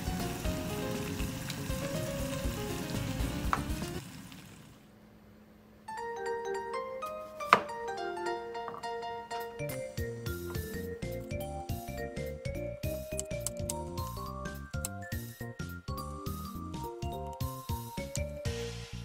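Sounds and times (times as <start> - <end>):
light background music: 0.0 - 4.0, 5.9 - 19.0
food sizzling in oil: 0.0 - 4.8.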